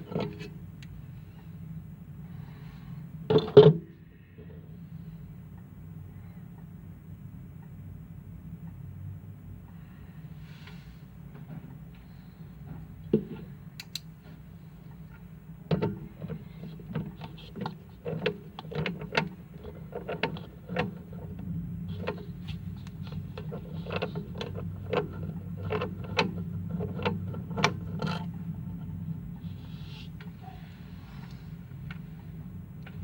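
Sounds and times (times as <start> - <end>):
steady low hum: 0.0 - 33.0
tools clicking and knocking: 13.8 - 14.1.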